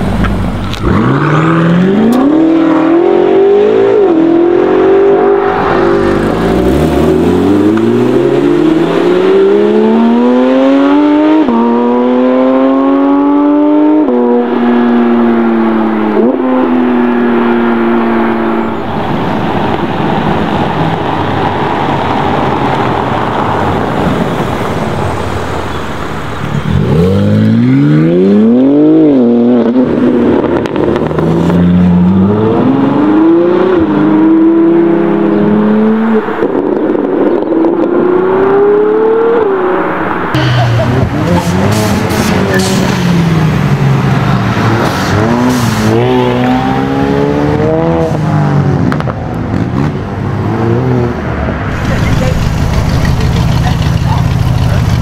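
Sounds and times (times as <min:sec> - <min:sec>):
car engine accelerating hard: 0:00.0 - 0:18.8, 0:19.5 - 0:55.0
sports car engine revving: 0:00.0 - 0:18.8
engine and tyre noise on cobbles: 0:00.0 - 0:55.0.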